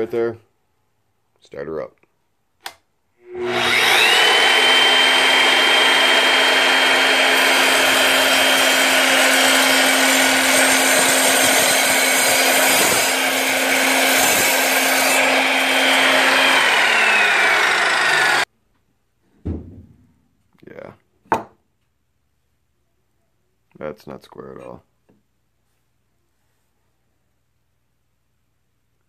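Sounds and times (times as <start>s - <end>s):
miter saw whining: 3.2s - 18.5s
saw blade cutting wood: 3.2s - 18.5s.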